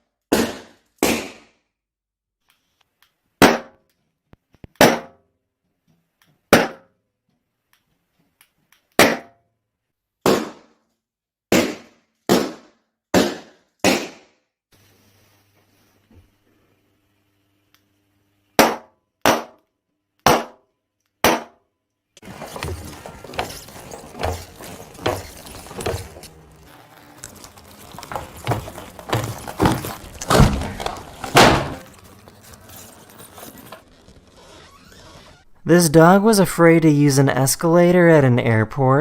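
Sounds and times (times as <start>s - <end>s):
cracking and clattering: 22.2s - 35.4s
balloons bursting: 22.2s - 35.5s.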